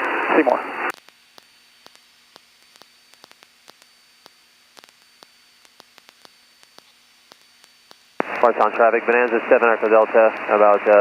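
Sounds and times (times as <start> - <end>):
faint steady whine: 0.0 - 11.0
radio static hiss: 0.0 - 11.0
sharp clicks: 0.9 - 9.4.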